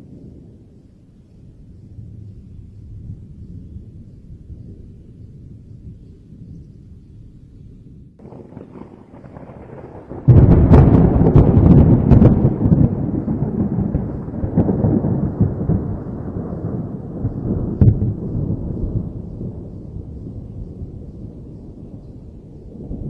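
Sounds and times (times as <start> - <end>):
thunderclap: 8.2 - 23.0.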